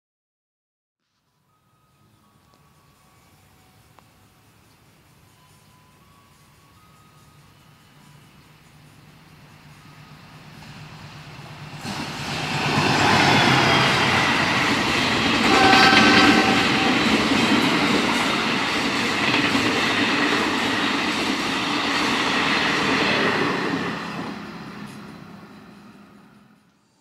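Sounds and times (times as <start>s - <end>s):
train rumble and wheel clatter: 2.2s - 27.0s
train horn blast: 15.3s - 18.6s.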